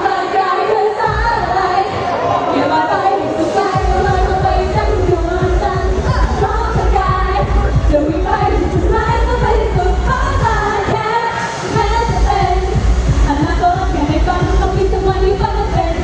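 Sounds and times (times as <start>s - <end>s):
women singing pop song: 0.0s - 16.0s
backing track with heavy beat: 3.1s - 16.0s.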